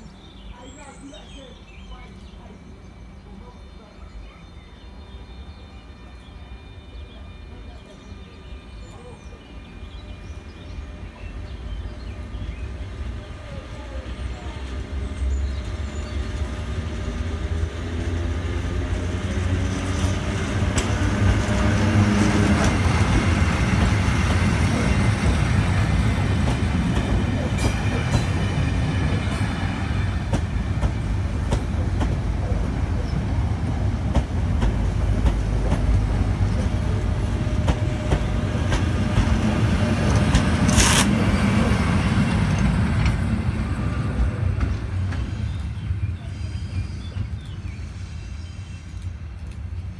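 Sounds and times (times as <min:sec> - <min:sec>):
wheel-on-rail noise: 0:10.5 - 0:49.9
locomotive engine: 0:10.9 - 0:48.1.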